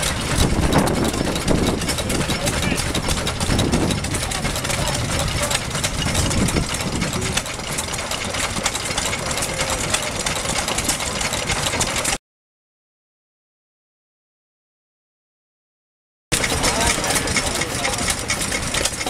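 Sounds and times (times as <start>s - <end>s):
old stationary engines knocking: 0.0s - 12.2s, 16.3s - 19.0s.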